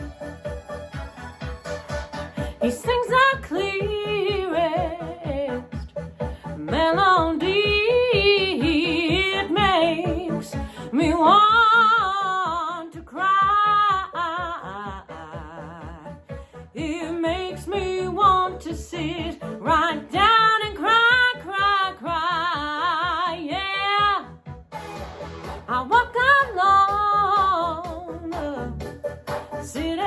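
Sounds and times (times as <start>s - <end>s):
synth-pop backing track: 0.0s - 30.0s
woman singing with vibrato: 2.4s - 5.9s, 6.5s - 16.2s, 16.8s - 24.3s, 25.7s - 28.9s, 29.6s - 30.0s.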